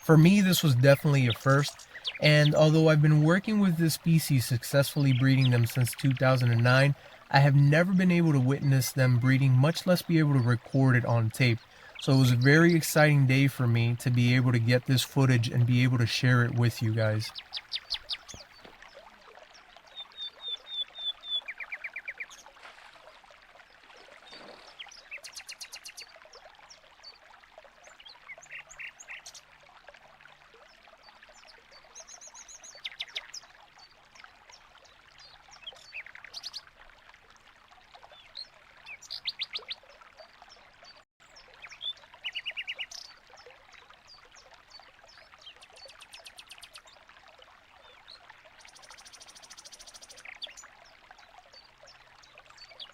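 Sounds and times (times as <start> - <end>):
finches chirping in bursts: 0.0 - 18.5
faint steady hiss: 0.0 - 18.7.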